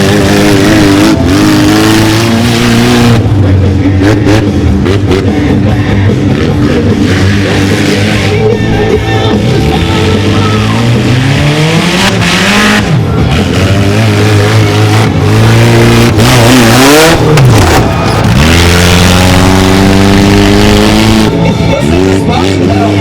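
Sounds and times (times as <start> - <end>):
small engine revving: 6.3 - 8.5, 9.3 - 23.0.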